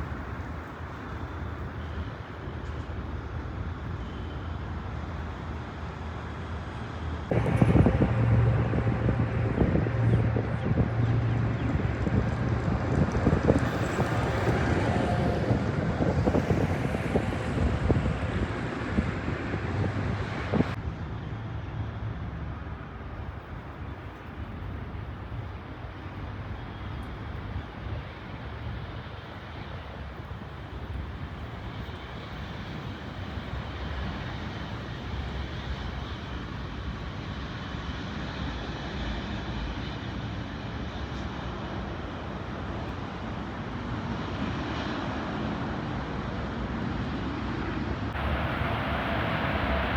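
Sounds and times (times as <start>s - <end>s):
jet engines rushing: 7.3s - 20.8s, 43.9s - 49.9s
wind on microphone: 7.3s - 20.8s.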